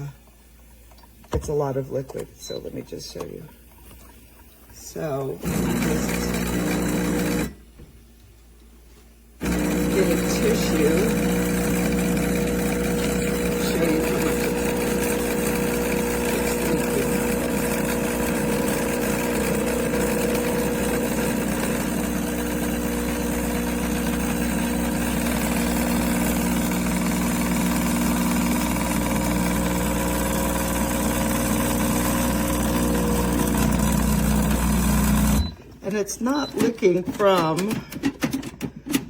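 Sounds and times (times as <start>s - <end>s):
espresso machine pump humming: 5.1s - 7.6s, 9.4s - 35.6s.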